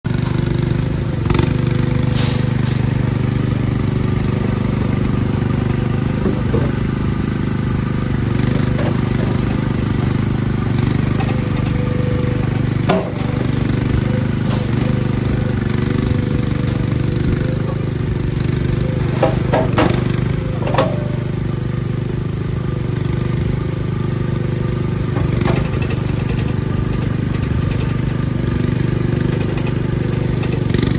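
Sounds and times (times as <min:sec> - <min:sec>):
loader engine running: 0:00.0 - 0:30.9
short metallic clanks: 0:02.0 - 0:03.0, 0:12.6 - 0:15.8, 0:19.0 - 0:21.6.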